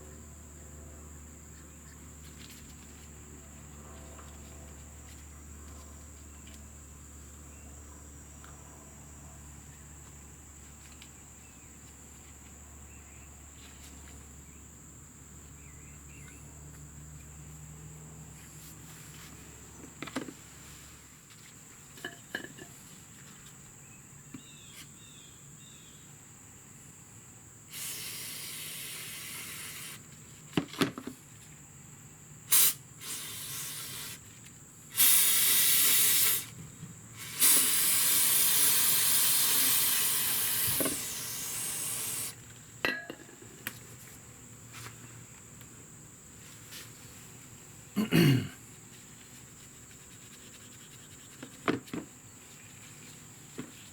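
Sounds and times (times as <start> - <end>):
aerosol can spraying: 27.7 - 30.0, 32.5 - 34.2, 34.9 - 36.5, 37.2 - 42.4.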